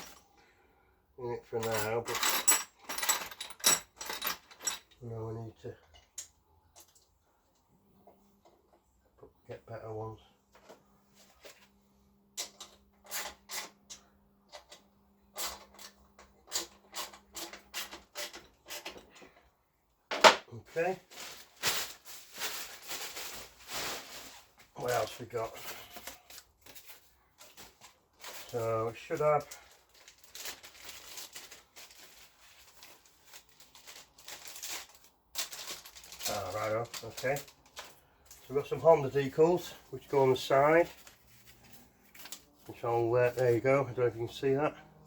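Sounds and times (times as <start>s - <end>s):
small parts clicking and rustling: 1.5s - 5.2s, 12.4s - 19.5s, 21.2s - 39.8s
plastic bag crinkling: 20.7s - 44.4s.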